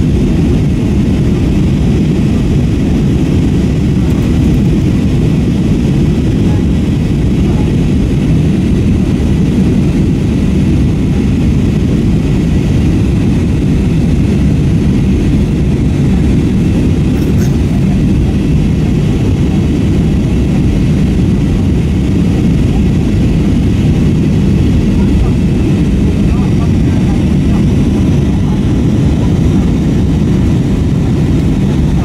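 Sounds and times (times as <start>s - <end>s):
airplane cabin engine rumble: 0.0s - 32.0s.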